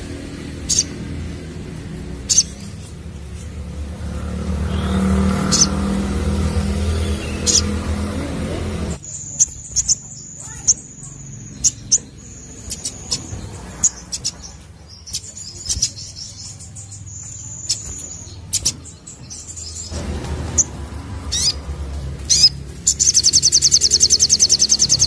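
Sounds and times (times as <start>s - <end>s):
rapid bird trill: 0.0s - 8.2s, 8.9s - 25.0s
bird chirping and whistling: 0.5s - 1.1s, 2.2s - 3.0s, 4.6s - 8.1s, 9.0s - 20.0s, 22.3s - 25.0s.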